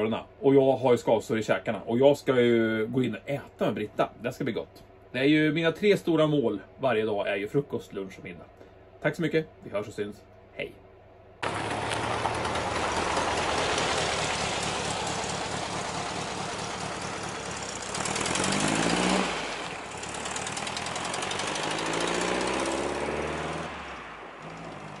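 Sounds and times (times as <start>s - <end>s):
car engine accelerating: 11.4s - 25.0s.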